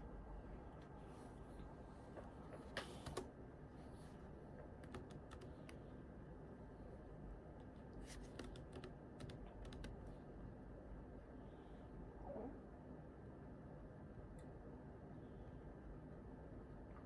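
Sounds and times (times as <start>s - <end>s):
computer keyboard typing: 4.8s - 5.8s, 8.2s - 10.1s.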